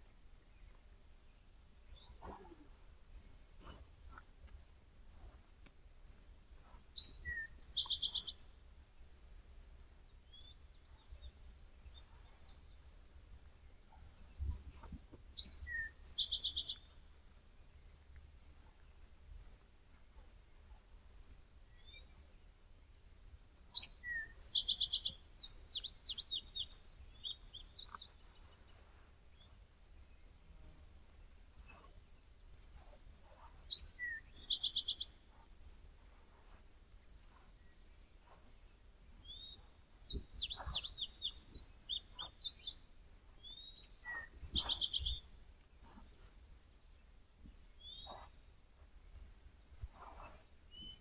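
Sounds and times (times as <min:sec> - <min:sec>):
songbird singing: 0:00.0 - 0:04.2, 0:06.6 - 0:20.9, 0:21.6 - 0:51.0
soft low thumps: 0:13.2 - 0:15.7.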